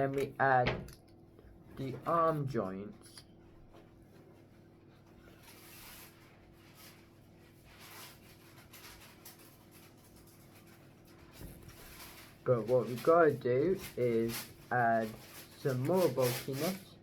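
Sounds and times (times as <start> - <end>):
low steady hum: 0.0 - 17.0
faint rustling: 3.0 - 17.0.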